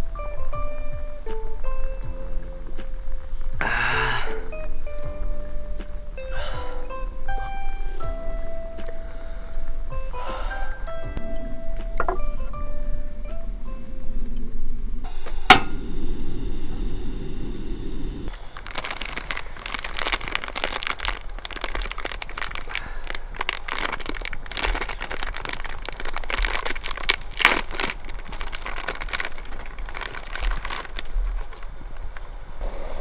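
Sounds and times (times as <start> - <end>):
low rushing noise: 4.4 - 18.4, 32.4 - 33.0
campfire crackling and popping: 13.5 - 33.0.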